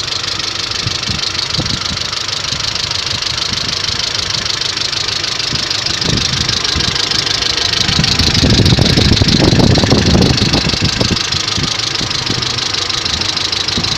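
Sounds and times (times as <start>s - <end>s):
car engine idling: 0.0s - 13.9s
rapid engine knocking: 0.0s - 13.9s.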